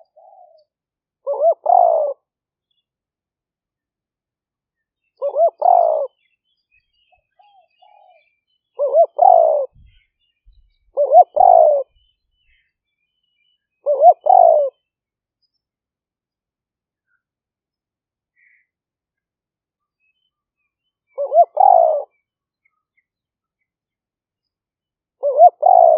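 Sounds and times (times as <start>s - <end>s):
dove cooing: 0.0s - 0.6s, 1.2s - 2.2s, 5.2s - 6.2s, 8.8s - 10.0s, 10.9s - 11.9s, 13.8s - 14.8s, 21.1s - 22.2s, 25.2s - 25.9s.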